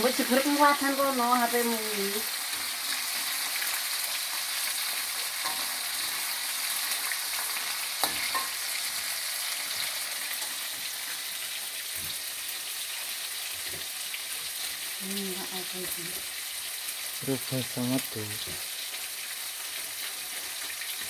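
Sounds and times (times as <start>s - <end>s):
fish sizzling in oil: 0.0s - 21.0s
small crackles: 18.5s - 21.0s.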